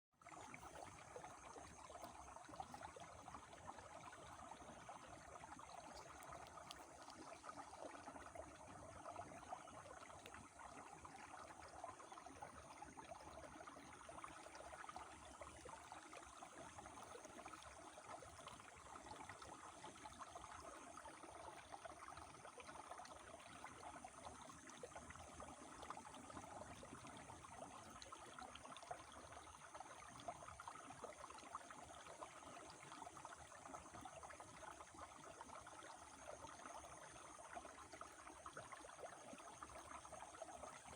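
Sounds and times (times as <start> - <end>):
river flowing: 0.3 - 12.0.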